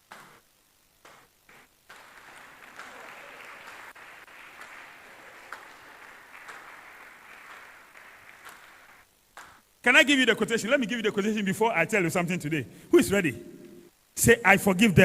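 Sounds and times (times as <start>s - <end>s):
congregation applauding: 1.0s - 9.6s.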